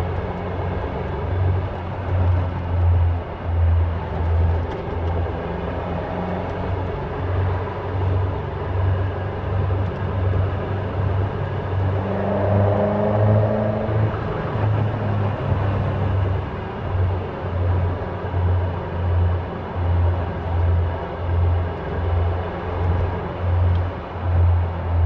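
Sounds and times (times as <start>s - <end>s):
car engine rumbling: 0.0s - 25.0s.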